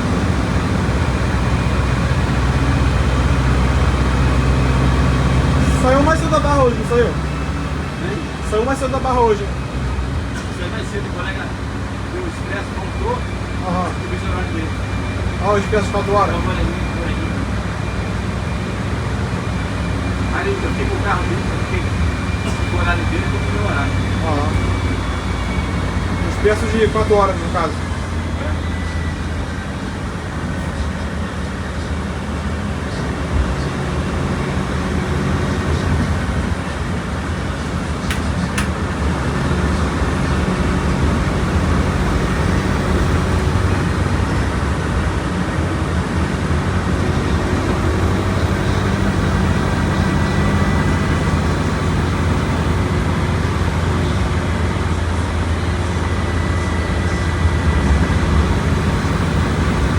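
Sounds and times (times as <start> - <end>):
bus diesel engine droning: 0.0 - 59.9.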